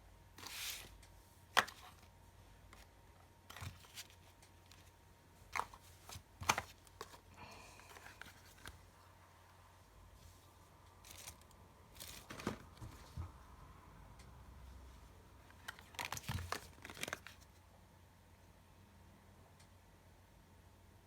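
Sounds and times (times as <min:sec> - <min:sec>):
scratchy rustle of packaging: 0:00.4 - 0:01.0, 0:11.0 - 0:12.9.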